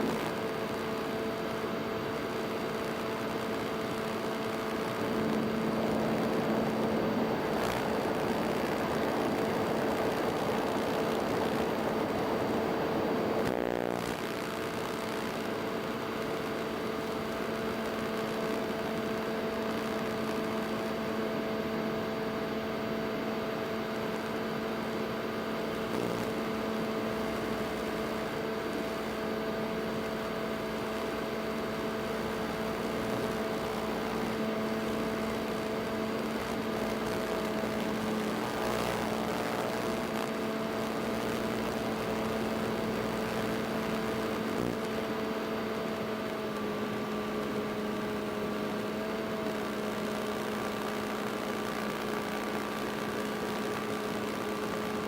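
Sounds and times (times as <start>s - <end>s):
quadcopter motors humming: 0.0s - 13.5s.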